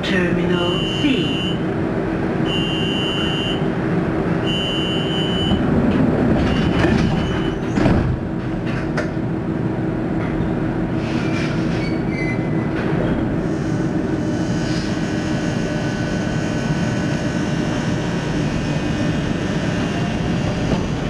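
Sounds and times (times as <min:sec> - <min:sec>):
monorail car rumble and hum: 0:00.0 - 0:21.0
beeping tone: 0:00.6 - 0:01.6, 0:02.5 - 0:03.6, 0:04.4 - 0:05.6.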